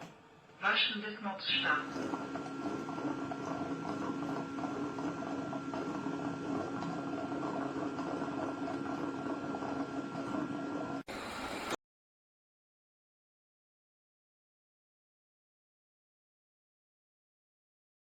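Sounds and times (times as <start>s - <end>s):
mechanical hum with high whine: 0.0s - 11.8s.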